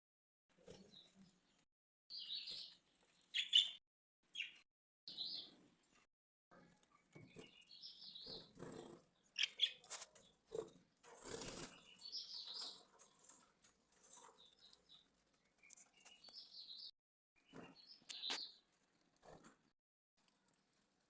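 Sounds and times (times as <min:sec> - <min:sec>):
budgerigars chirping: 0:03.3 - 0:03.8, 0:09.3 - 0:09.8.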